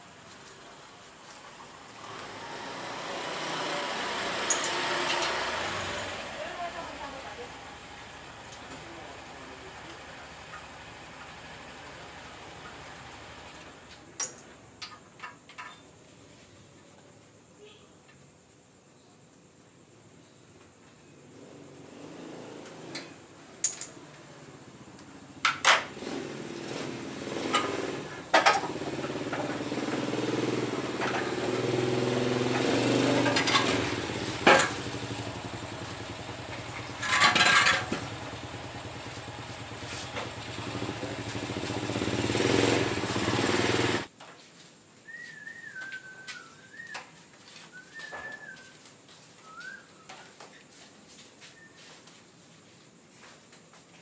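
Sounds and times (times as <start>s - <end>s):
sharp metallic clinks and knocks: 4.4s - 5.4s, 23.0s - 24.0s
motor engine running: 26.0s - 44.1s.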